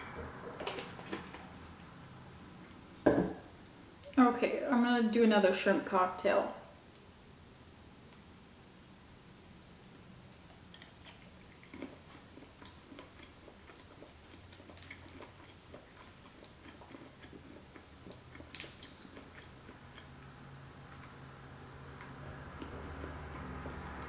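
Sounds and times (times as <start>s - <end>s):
person chewing: 10.5s - 21.2s.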